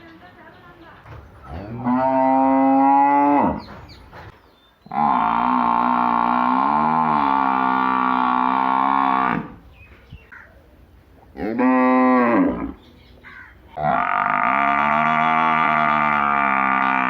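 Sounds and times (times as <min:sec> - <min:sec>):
cow mooing: 0:01.5 - 0:03.7, 0:04.9 - 0:09.6, 0:11.4 - 0:12.8, 0:13.8 - 0:17.0.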